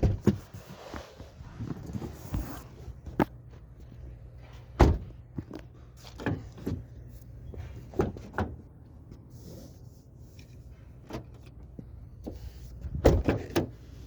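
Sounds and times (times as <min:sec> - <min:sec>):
car door clicks and knocks: 0:04.8 - 0:05.1, 0:12.9 - 0:13.8
car door heavy thump: 0:04.8 - 0:05.1, 0:12.9 - 0:13.7.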